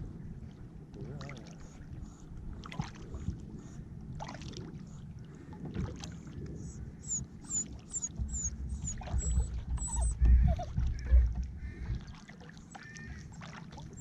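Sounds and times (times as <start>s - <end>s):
kayak paddle strokes and splashing: 4.2s - 6.6s, 7.6s - 14.0s.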